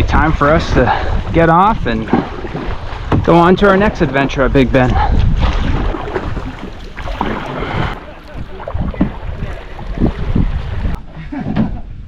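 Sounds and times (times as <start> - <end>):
wind on microphone: 0.0 - 12.0
water sloshing around canoe: 0.6 - 11.7.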